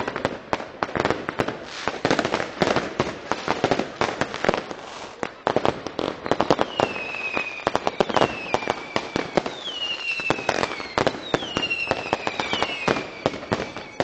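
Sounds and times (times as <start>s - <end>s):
fireworks bangs and crackles: 0.0s - 14.0s
falling firework whistles: 6.0s - 14.0s.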